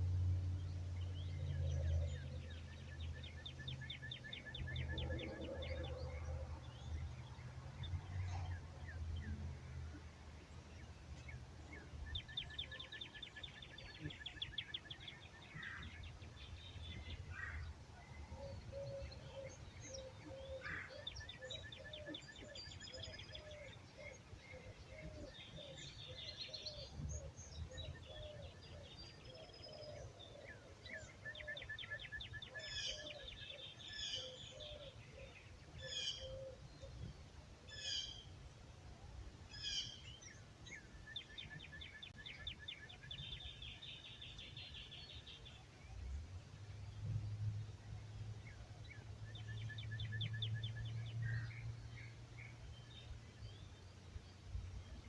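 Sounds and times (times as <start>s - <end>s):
songbirds trilling and chirping: 0.0s - 55.0s.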